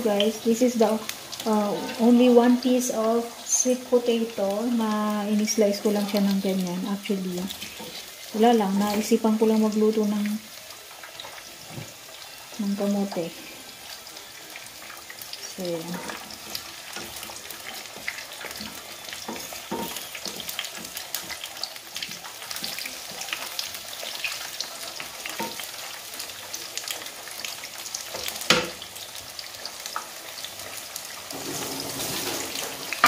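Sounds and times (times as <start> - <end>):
slices sizzling in hot oil: 0.0 - 33.0
wooden spatula moving food: 15.7 - 27.1.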